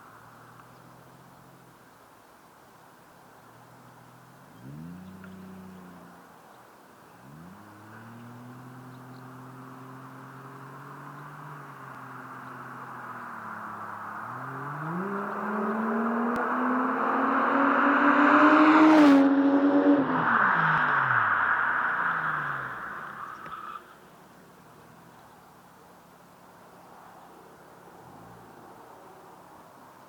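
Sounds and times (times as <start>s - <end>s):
car engine revving: 3.7s - 6.3s, 7.1s - 25.2s.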